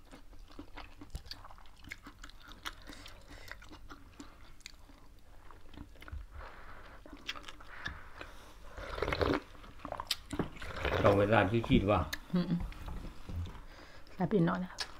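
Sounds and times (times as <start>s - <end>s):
chewing and crunching: 0.0s - 11.4s.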